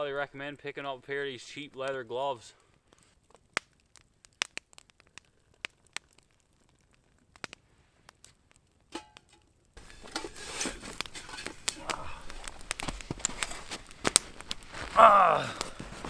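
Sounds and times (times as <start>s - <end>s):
campfire crackling: 0.0s - 16.0s
sharp pops of fire: 0.4s - 16.0s
rustling: 9.2s - 16.0s.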